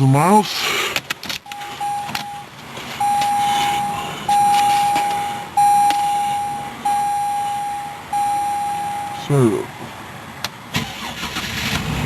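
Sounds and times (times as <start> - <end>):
dashboard warning chime beeps: 1.4 - 9.6.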